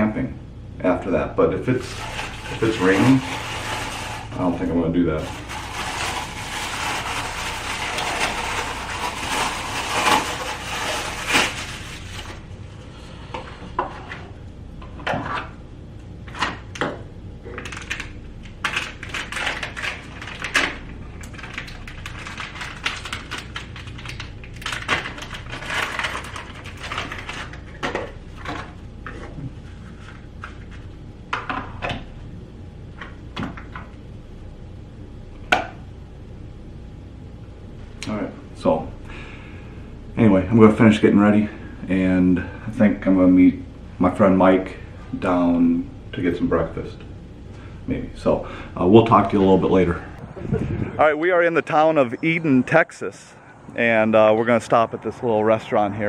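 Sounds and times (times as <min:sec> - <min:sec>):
small hard objects clattering: 0:05.2 - 0:12.4, 0:17.6 - 0:28.6.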